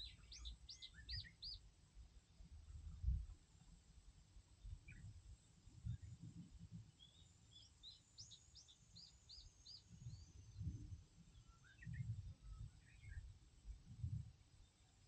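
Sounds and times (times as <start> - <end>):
bird chirps: 0.0 - 1.6, 7.0 - 13.3.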